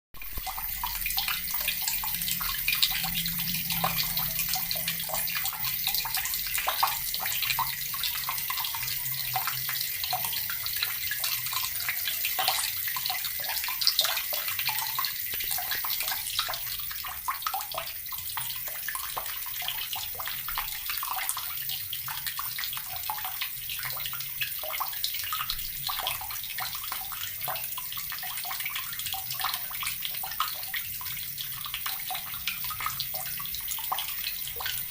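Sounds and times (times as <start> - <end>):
tap water splashing into basin: 0.2 - 21.5.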